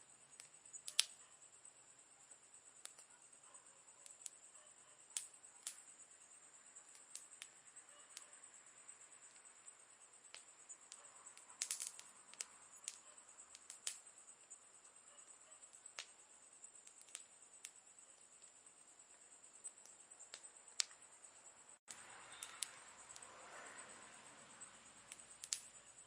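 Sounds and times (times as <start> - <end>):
campfire crackling and popping: 0.3 - 1.3, 2.6 - 8.3, 9.2 - 21.1, 21.8 - 23.3, 25.1 - 26.0.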